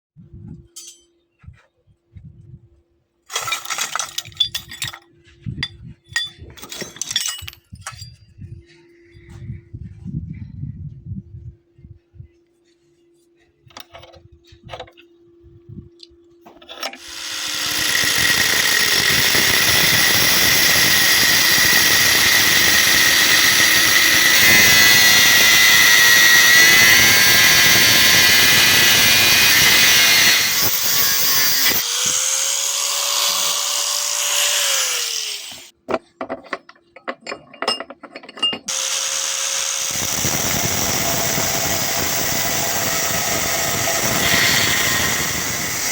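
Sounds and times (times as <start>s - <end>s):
angle grinder cutting steel: 16.8s - 35.7s, 38.7s - 45.9s.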